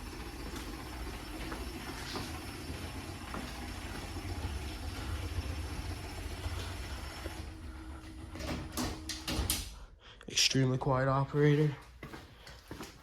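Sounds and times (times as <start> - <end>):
garage door opener motor hum: 0.0 - 9.9.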